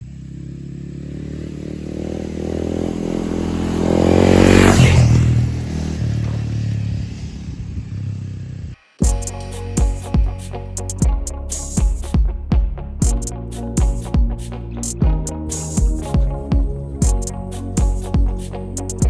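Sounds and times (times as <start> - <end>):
motorcycle riding past: 0.0 - 9.0.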